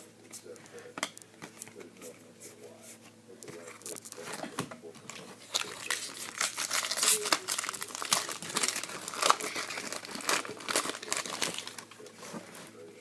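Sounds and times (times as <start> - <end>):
wrapper crinkling and tearing: 5.4 - 12.0.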